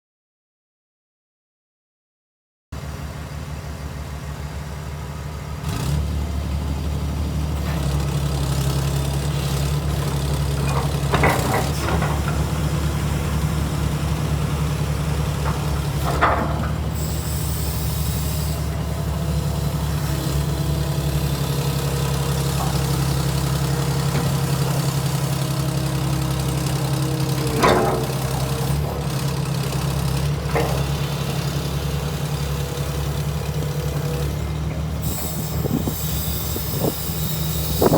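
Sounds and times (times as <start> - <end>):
excavator diesel engine running: 2.8 - 37.9
machine squeaks and creaks: 16.0 - 18.7, 35.0 - 37.9.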